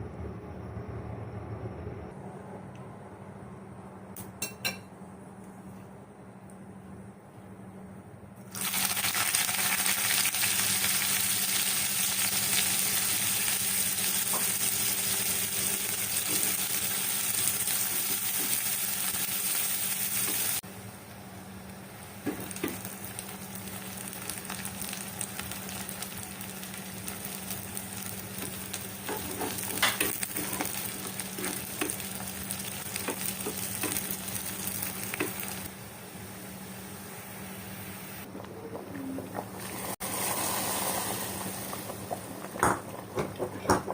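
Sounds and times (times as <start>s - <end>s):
food sizzling in hot oil: 8.5s - 20.7s, 21.5s - 38.2s, 39.6s - 42.7s.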